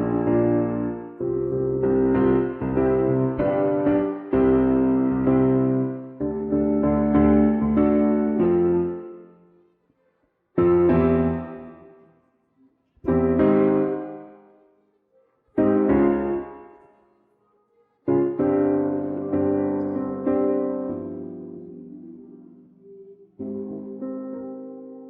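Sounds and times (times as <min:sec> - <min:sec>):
piano chords: 0:00.0 - 0:09.6, 0:10.6 - 0:12.2, 0:13.0 - 0:14.7, 0:15.5 - 0:17.0, 0:18.0 - 0:25.0.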